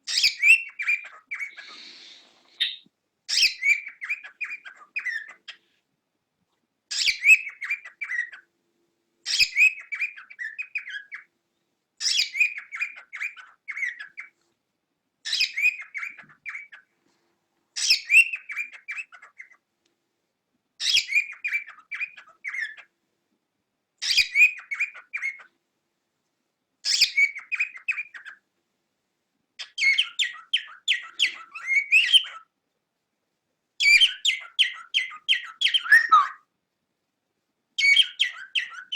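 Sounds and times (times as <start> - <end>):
cockatiel chirping: 0.1 - 1.9, 2.6 - 5.7, 6.9 - 8.4, 9.3 - 11.3, 12.0 - 14.3, 15.3 - 16.8, 17.8 - 19.6, 20.8 - 22.8, 24.0 - 25.5, 26.9 - 28.4, 29.6 - 32.4, 33.8 - 36.4, 37.8 - 38.9.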